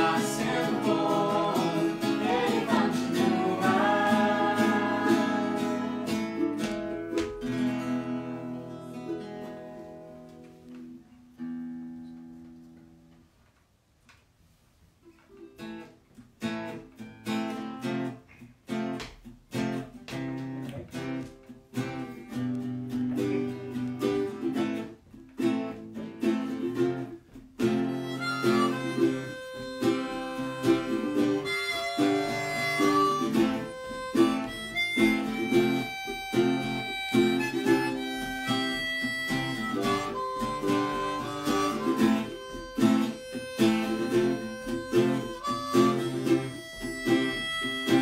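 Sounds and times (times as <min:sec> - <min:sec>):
harmonica melody: 0:00.0 - 0:09.4, 0:25.8 - 0:48.0
acoustic guitar strumming: 0:00.0 - 0:13.1, 0:15.4 - 0:48.0.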